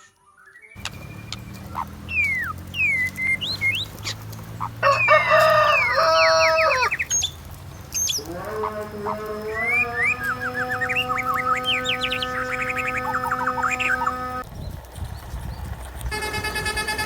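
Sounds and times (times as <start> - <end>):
rooster crowing: 4.6 - 7.1, 8.2 - 14.4.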